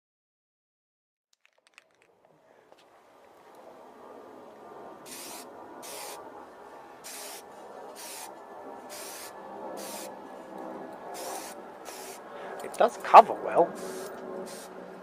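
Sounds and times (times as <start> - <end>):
spray can hissing: 5.1 - 6.2, 7.0 - 7.4, 8.0 - 8.3, 8.9 - 10.1, 11.2 - 12.2, 13.8 - 14.7.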